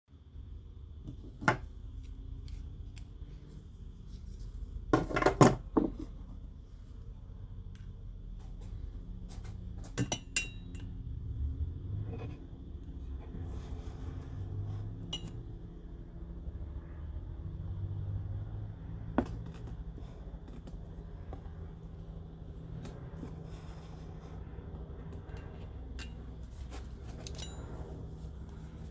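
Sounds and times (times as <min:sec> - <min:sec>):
steady low hum: 0:00.1 - 0:28.9
metal tools clicking and scraping: 0:09.9 - 0:11.0, 0:15.0 - 0:15.4, 0:25.0 - 0:28.6.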